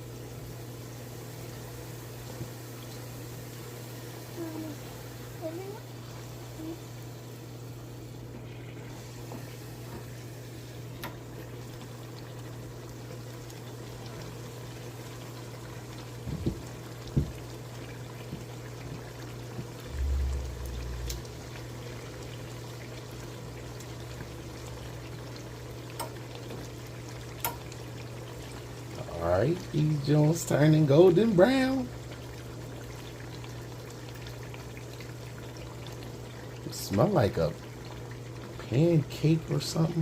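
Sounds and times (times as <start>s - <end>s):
dough sizzling in hot oil: 0.0s - 40.0s
brief low rumble: 19.9s - 21.6s.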